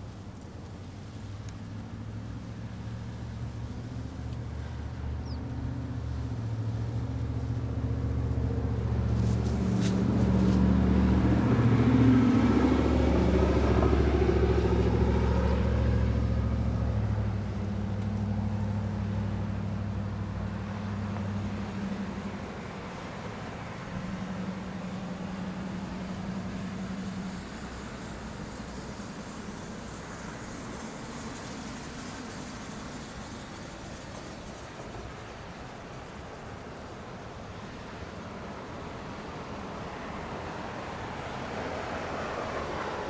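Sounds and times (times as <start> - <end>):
vehicle engine passing by: 2.4 - 27.4.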